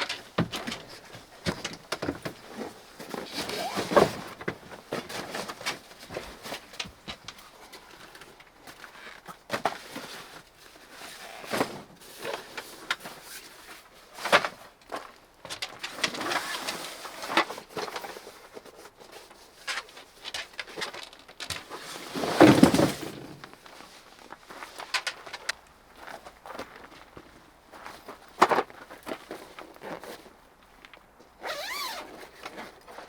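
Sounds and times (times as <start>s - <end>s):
objects being handled: 15.5s - 24.0s, 24.6s - 25.6s.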